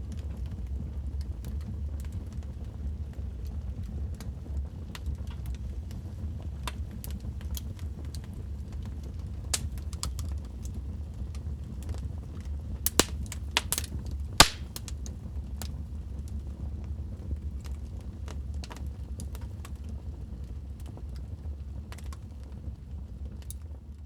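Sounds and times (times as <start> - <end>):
fire flames roaring: 0.1 - 24.0
fire pops and snaps: 4.9 - 16.4, 21.9 - 22.6.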